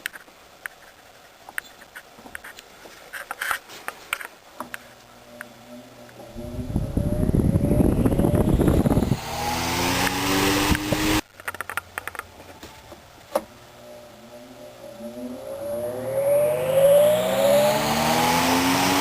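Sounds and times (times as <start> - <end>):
electric motor hum rising: 5.2 - 11.2, 13.6 - 19.0.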